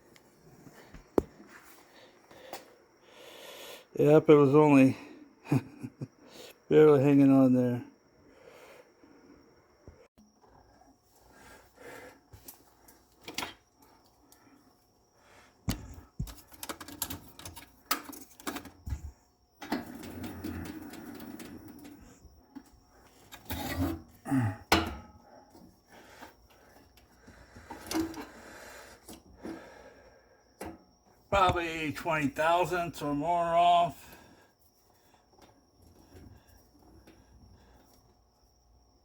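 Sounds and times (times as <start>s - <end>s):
tools and wood clicking: 16.2s - 18.8s.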